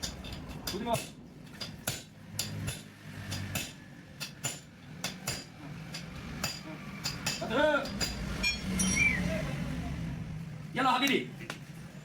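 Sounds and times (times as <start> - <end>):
metallic clinks of tools: 2.4 - 9.2.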